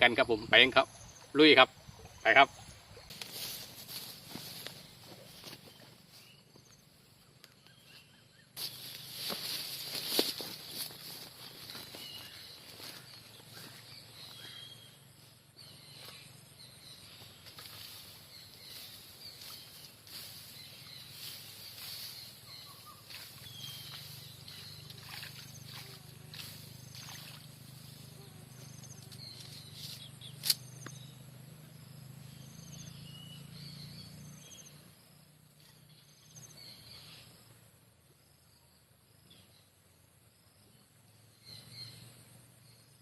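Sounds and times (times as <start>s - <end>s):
rustling: 8.6s - 13.1s
high insect drone: 8.6s - 33.0s
bird chirps: 10.7s - 34.8s.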